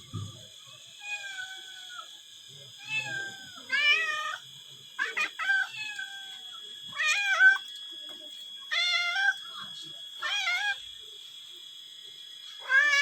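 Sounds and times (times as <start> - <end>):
cats meowing: 0.2 - 2.1, 2.8 - 4.4, 5.0 - 7.6, 8.6 - 9.4, 10.2 - 10.9, 12.6 - 13.0.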